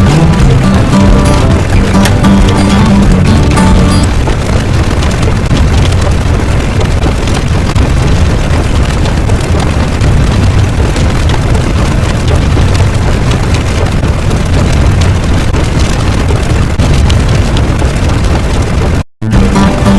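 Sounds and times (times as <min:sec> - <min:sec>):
short music: 0:00.0 - 0:04.4, 0:19.2 - 0:19.9
loud low rumbling: 0:00.0 - 0:19.9.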